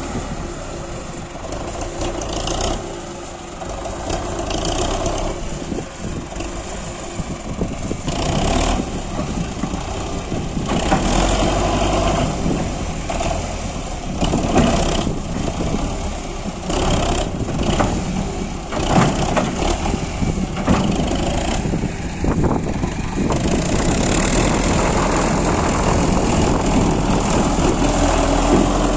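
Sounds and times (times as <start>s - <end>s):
tractor diesel engine running: 0.0s - 28.9s
sharp knocks and rattles: 16.9s - 21.6s.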